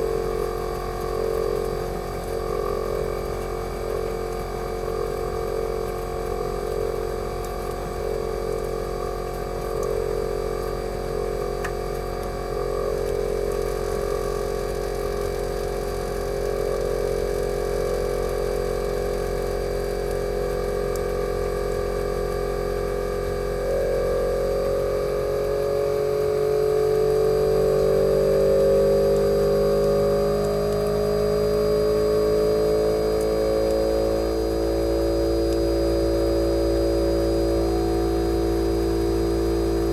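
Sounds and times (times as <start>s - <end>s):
compressor humming: 0.0s - 39.9s.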